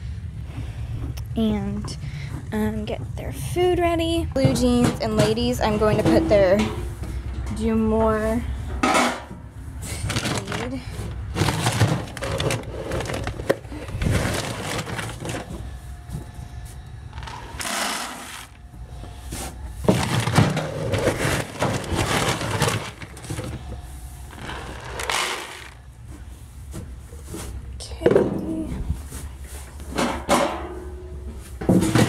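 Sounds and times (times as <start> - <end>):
dry feed poured into buckets: 24.3 - 25.8.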